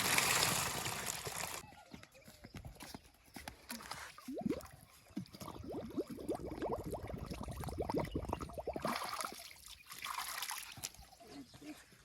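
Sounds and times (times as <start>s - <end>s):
water gurgling and bubbling: 4.3s - 9.6s.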